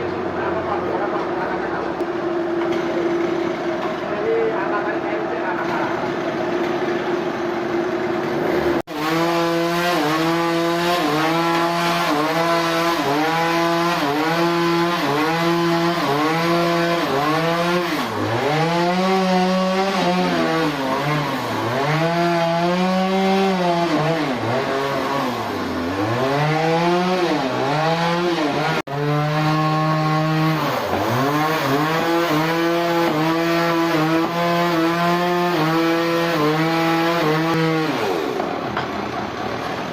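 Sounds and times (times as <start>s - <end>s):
chainsaw cutting wood: 2.0s - 4.2s, 5.7s - 39.9s.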